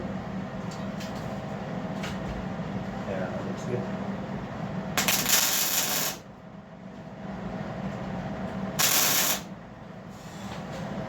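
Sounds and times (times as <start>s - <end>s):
steady low hum: 0.0s - 11.0s
welder crackling hiss: 5.0s - 6.2s, 8.8s - 9.5s.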